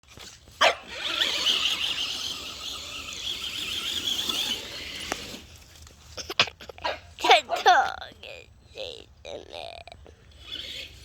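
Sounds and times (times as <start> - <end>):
toy truck motor whining: 0.1 - 5.6, 8.2 - 11.0.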